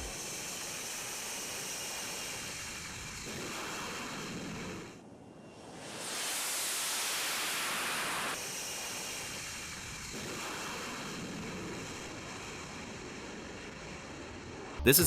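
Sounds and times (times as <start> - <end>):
jet engine roar: 5.2 - 8.4.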